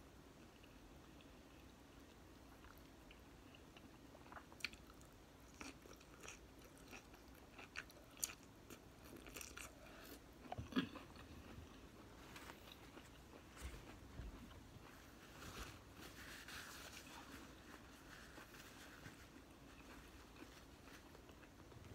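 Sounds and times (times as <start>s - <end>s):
person chewing: 0.4s - 21.9s.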